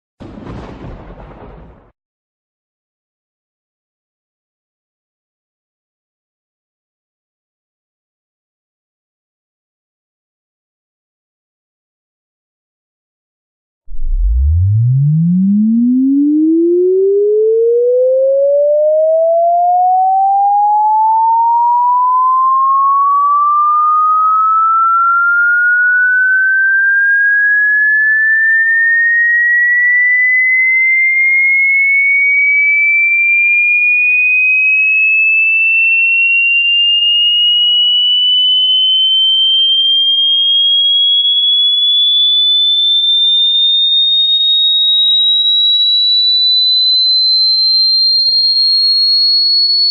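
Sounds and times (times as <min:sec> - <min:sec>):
rising test tone sweep: 0:13.9 - 0:31.1, 0:36.6 - 0:41.5.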